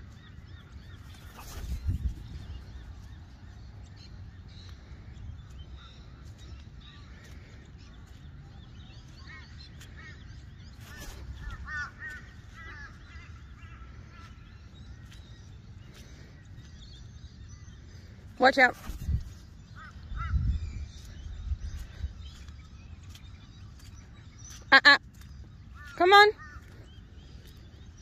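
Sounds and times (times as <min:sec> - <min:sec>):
bird calls and chirping: 0:00.0 - 0:28.0
wind on microphone: 0:01.4 - 0:03.2, 0:18.8 - 0:23.8.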